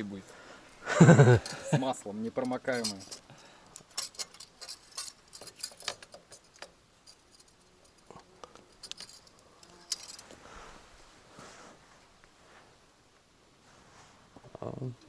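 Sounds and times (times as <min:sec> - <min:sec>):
small handling clicks and rustles: 0:01.1 - 0:10.4.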